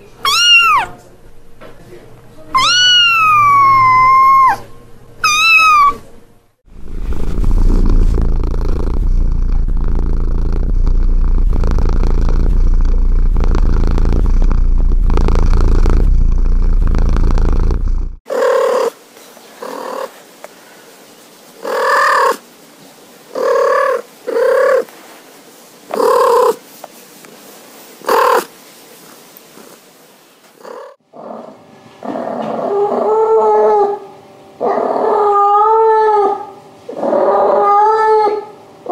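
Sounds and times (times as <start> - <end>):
cat trill calls: 0.2 - 1.0, 2.6 - 6.0
cat purring: 6.7 - 18.9, 19.6 - 20.2, 21.6 - 22.4, 23.3 - 24.9, 25.9 - 26.6, 28.0 - 29.8, 30.6 - 31.0.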